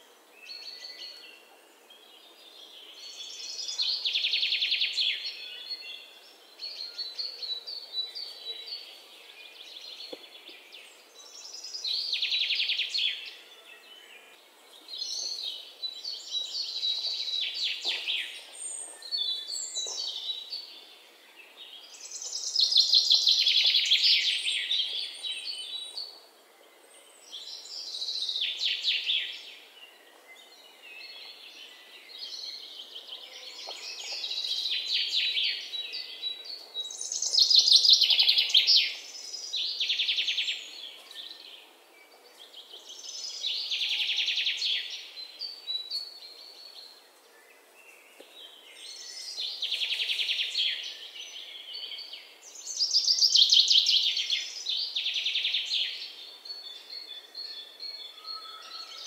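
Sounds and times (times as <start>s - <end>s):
small birds chirping and trilling: 0.0s - 59.0s.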